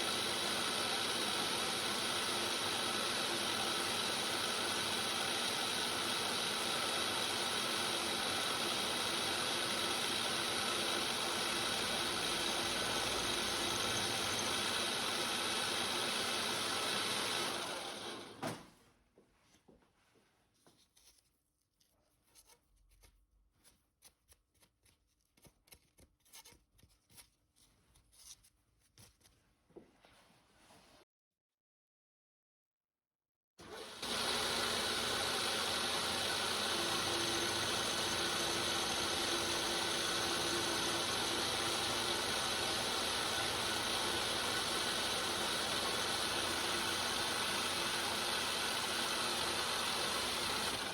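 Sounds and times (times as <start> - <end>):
machine tool humming: 0.0 - 18.4, 33.7 - 50.9.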